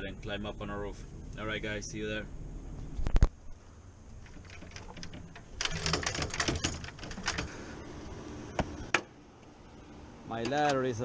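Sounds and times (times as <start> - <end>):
light clicks and rattles: 4.1 - 7.6.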